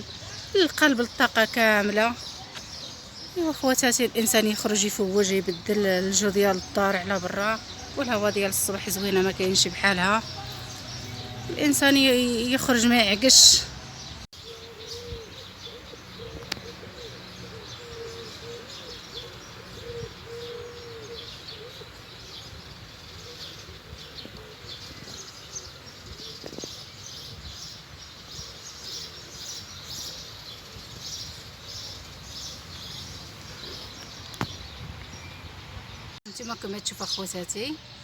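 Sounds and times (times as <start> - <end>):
small birds chirping: 0.0 - 38.0
dove cooing: 14.4 - 26.7.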